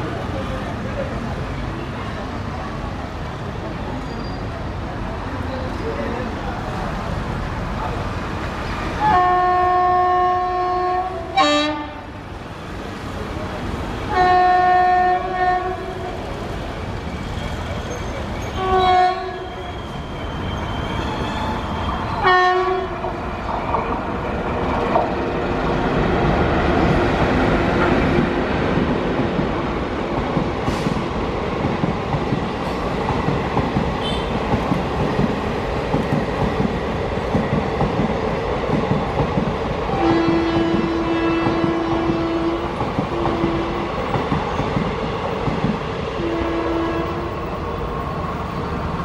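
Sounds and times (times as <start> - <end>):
locomotive horn blasts: 9.0 - 12.1, 14.1 - 15.9, 18.6 - 19.5, 22.2 - 22.9, 34.0 - 34.3, 40.0 - 43.8, 46.2 - 47.4
train wheels clattering over rails: 23.0 - 46.0.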